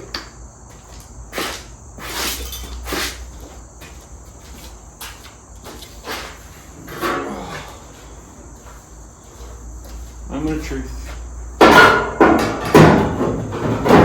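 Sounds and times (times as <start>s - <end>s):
high-pitched insect-like background: 0.0s - 11.7s
short squeaking scrape: 1.4s - 3.2s
tools knocking and clunking: 11.6s - 14.0s.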